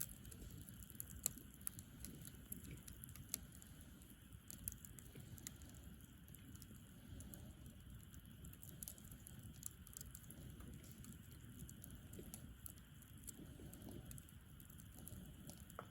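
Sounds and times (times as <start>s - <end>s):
campfire crackling and popping: 0.0s - 15.9s
low fire rumble: 0.0s - 15.9s.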